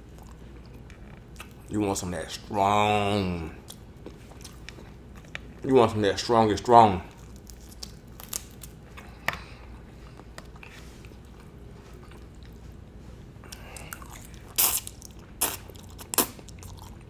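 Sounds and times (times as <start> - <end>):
low steady hum: 0.0 - 17.0
person biting and chewing food: 3.5 - 5.5, 7.1 - 12.7, 13.4 - 17.0.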